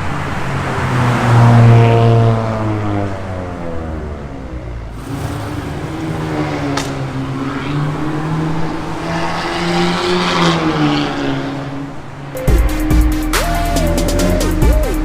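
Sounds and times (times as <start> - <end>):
car engine through exhaust: 0.0 - 15.0
electronic music: 12.4 - 15.0.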